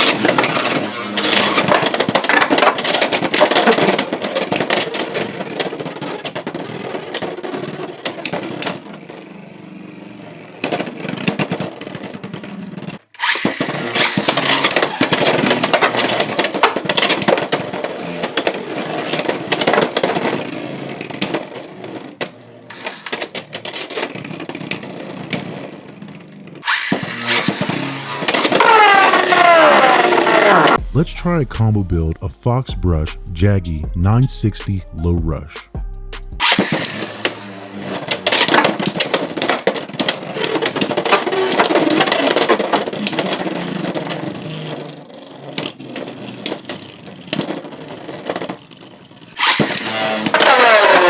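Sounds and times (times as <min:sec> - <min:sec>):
spinning tops whirring and scraping: 0:00.0 - 0:30.8, 0:36.4 - 0:51.0
spinning tops clacking: 0:36.4 - 0:42.6.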